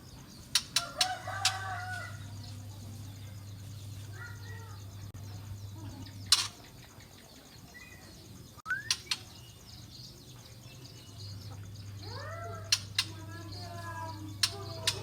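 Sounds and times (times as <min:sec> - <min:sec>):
bird calling and whistling: 0:08.6 - 0:09.4.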